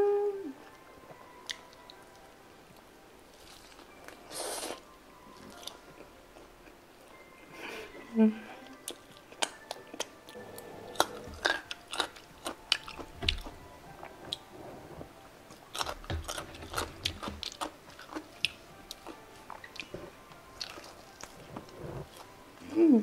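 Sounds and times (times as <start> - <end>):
chewing and crunching fried chicken: 3.3 - 4.8, 8.7 - 14.5, 15.5 - 22.4
wet mouth sounds: 9.4 - 14.5.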